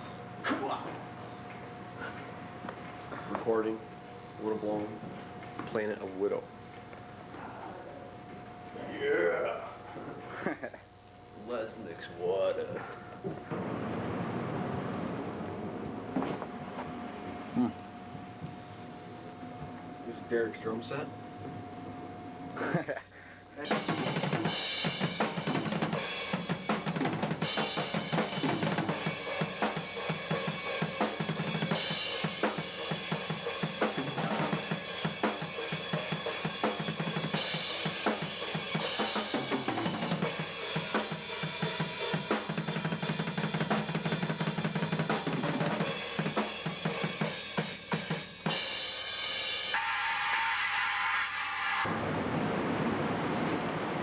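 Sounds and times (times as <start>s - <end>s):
rock drum kit playing: 23.6s - 49.8s.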